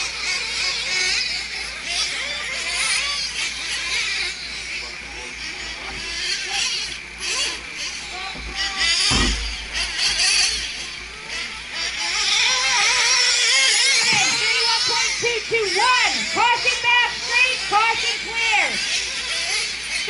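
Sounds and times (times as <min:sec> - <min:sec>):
rc truck engines whining: 0:00.0 - 0:20.0.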